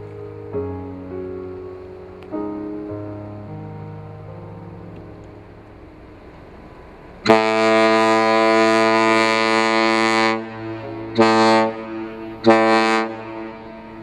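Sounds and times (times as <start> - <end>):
deep ship's horn blasts: 7.2 - 14.0.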